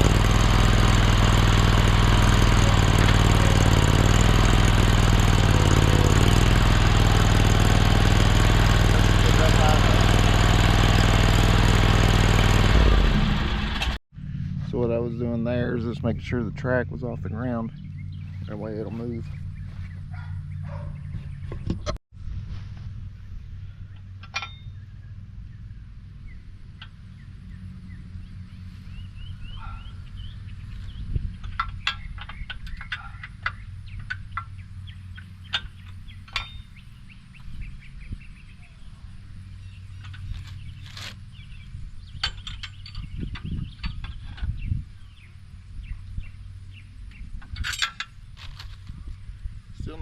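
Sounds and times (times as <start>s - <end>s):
loud clattering rattle: 0.0s - 14.0s
small gas engine idling: 0.0s - 14.7s, 23.6s - 46.9s
heavy rumbling strain: 0.0s - 20.0s
bird calls: 16.9s - 21.9s, 23.6s - 47.5s.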